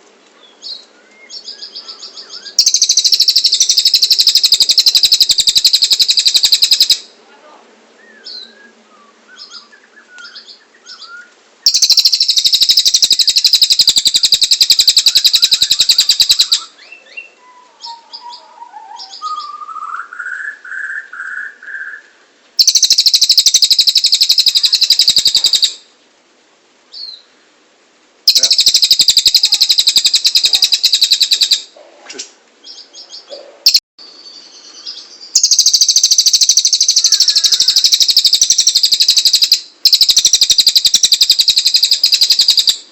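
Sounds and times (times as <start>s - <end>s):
bird chirps and calls: 0.4s - 7.1s, 8.0s - 25.8s, 28.3s - 42.9s
bird trilling: 0.6s - 7.1s, 9.4s - 25.8s, 28.3s - 31.8s, 32.6s - 33.8s, 34.8s - 42.9s.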